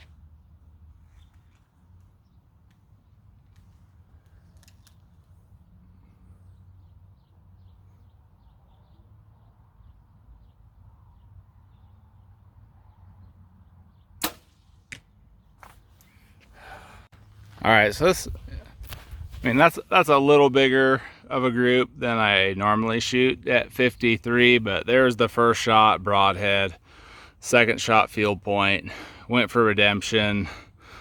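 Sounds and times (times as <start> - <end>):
bow release snap: 14.2 - 15.0
arrow hitting target: 14.2 - 15.1.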